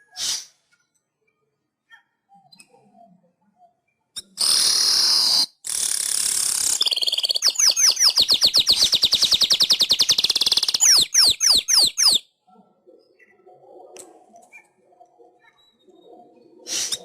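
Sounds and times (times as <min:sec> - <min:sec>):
weaver bird singing: 0:04.4 - 0:12.2.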